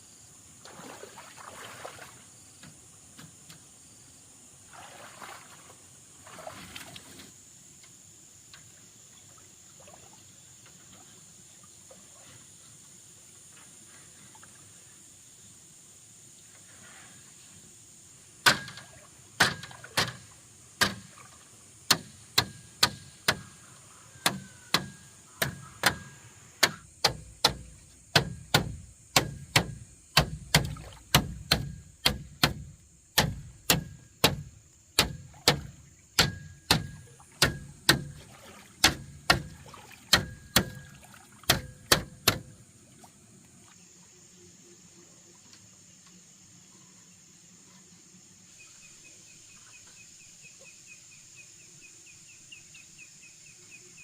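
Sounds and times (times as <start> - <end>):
crickets chirping: 0.0 - 54.0
hand tool striking: 18.4 - 18.8, 21.9 - 23.4, 24.2 - 38.2, 40.1 - 40.8, 41.5 - 42.5.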